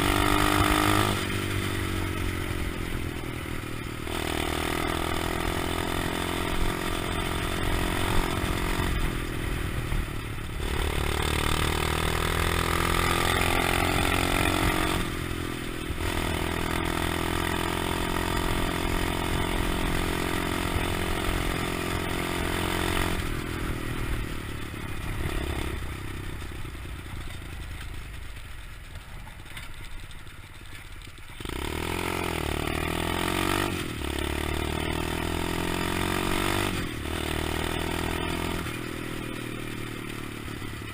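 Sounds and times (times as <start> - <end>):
pit bike engine revving: 0.0 - 26.6, 31.3 - 40.9.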